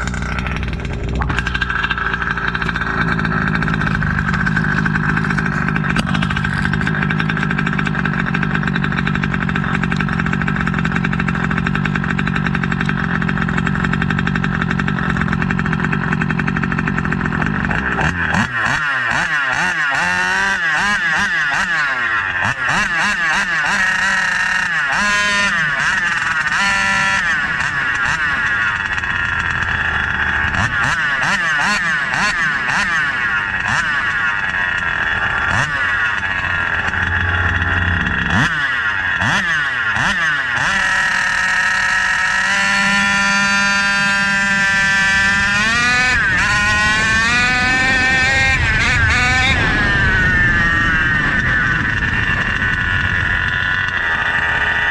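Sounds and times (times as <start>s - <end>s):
two-stroke engine revving: 0.0s - 54.9s.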